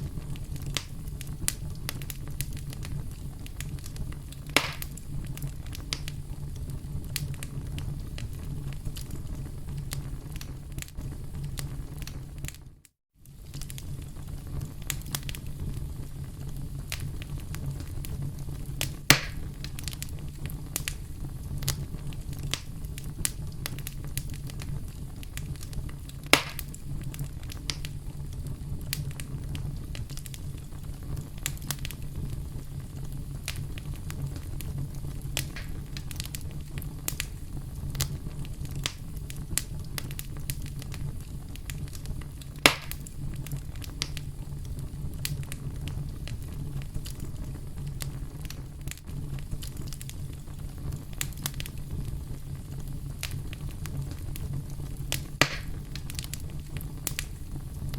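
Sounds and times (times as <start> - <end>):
campfire crackling: 0.0 - 57.9
low rumble of burning wood: 0.0 - 57.9
sharp fire pops: 0.0 - 57.9.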